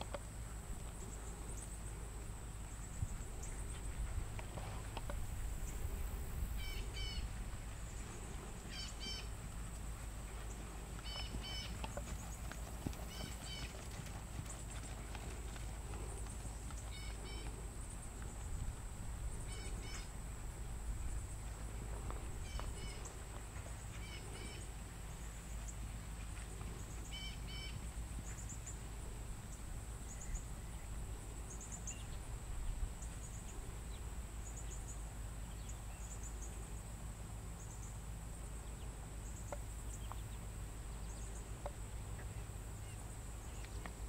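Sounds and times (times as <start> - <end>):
steady low rumble: 0.3 - 23.9
bird chirping: 6.6 - 7.3, 8.6 - 9.3, 10.5 - 13.8.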